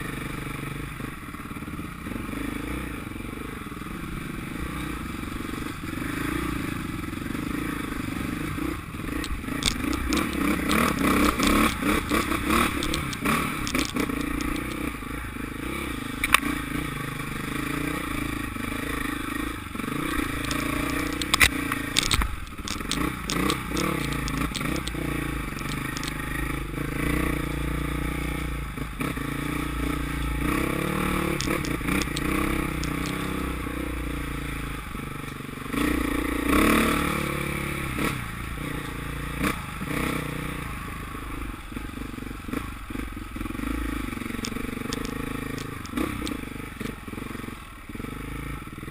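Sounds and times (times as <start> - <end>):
motocross bike engines revving: 1.6 - 35.0.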